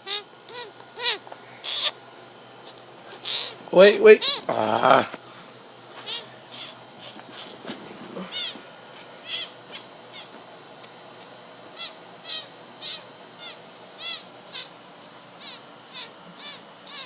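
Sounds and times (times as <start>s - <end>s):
baby making squeaky calls: 0.0s - 2.0s, 3.1s - 4.5s.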